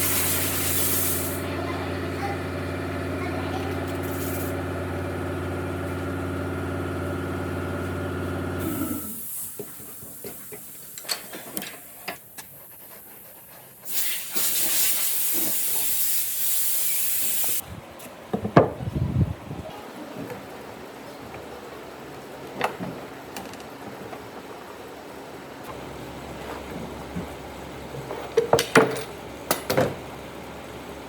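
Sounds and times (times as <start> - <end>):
compressed air blast hissing: 0.0 - 1.4, 4.0 - 4.6, 13.0 - 17.6.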